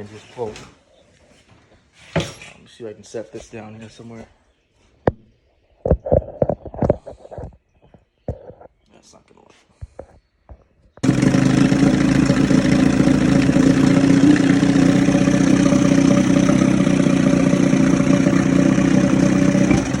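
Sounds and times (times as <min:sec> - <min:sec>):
outboard motor rope start: 0:11.0 - 0:20.0
outboard motor running: 0:11.0 - 0:20.0.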